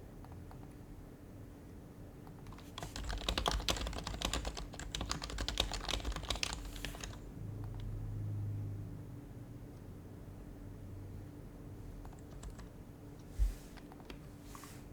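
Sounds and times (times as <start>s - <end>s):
soft muted keyboard typing: 0.1s - 0.8s, 2.2s - 8.0s, 12.0s - 12.8s, 13.8s - 14.8s.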